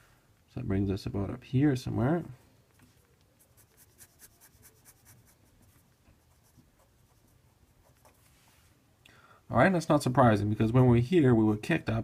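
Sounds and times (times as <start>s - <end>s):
pen scratching on paper: 3.4s - 8.2s.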